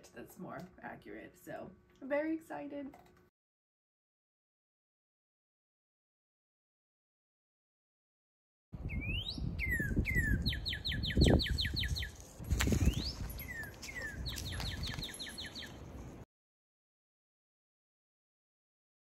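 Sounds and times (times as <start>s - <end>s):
songbird singing: 8.8s - 16.1s.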